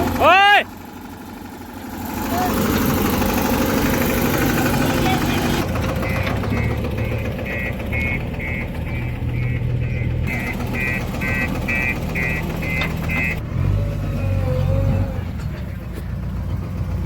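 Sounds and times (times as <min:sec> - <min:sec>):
heavy diesel engine running: 0:00.0 - 0:17.0
reversing alarm beeping: 0:05.1 - 0:13.4.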